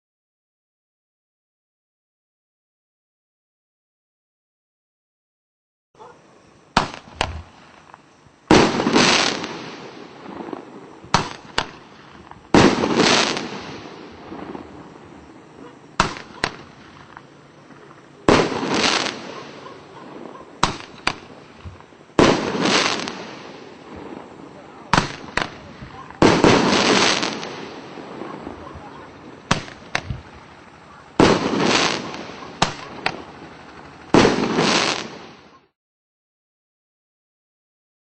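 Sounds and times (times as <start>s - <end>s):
firework bangs: 6.7s - 35.7s
roman candle crackling shots: 6.7s - 35.7s.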